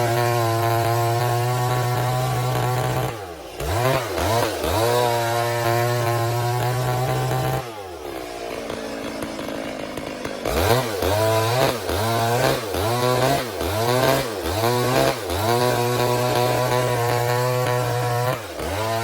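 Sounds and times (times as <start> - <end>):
chainsaw revving and idling: 0.0 - 19.0.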